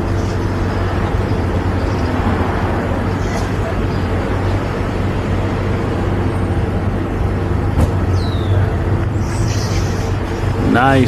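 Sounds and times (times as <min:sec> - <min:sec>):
road and wind noise: 0:00.0 - 0:11.0.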